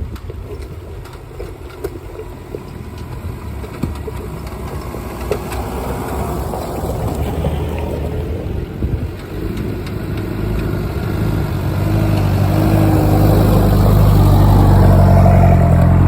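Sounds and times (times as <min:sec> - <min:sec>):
engine running at low speed: 0:00.0 - 0:16.0.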